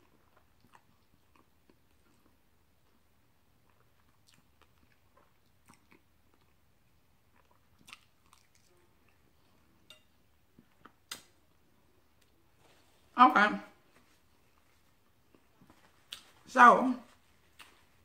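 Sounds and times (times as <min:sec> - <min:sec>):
close chewing: 0:00.0 - 0:09.6, 0:14.4 - 0:16.4
mouth clicks and lip smacks: 0:07.3 - 0:09.2, 0:15.3 - 0:16.4.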